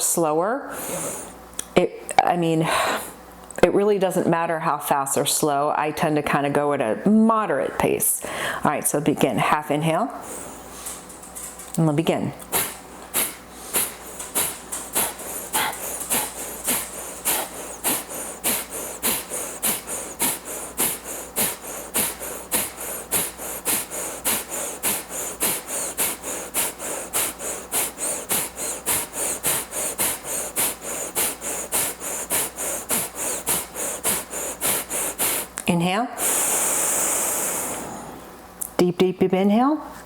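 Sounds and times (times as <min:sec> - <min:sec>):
rapid forceful nasal exhales: 0:00.7 - 0:01.4, 0:10.2 - 0:11.0, 0:12.4 - 0:35.6, 0:36.2 - 0:38.3.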